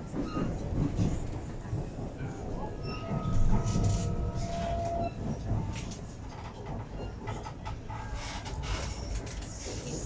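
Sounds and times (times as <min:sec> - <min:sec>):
train car rumble: 0:00.0 - 0:10.0.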